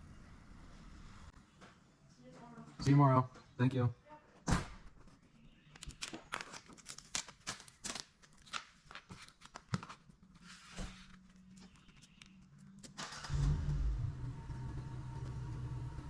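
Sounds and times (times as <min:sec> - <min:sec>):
vinyl decal paper crackling: 0:05.1 - 0:13.0.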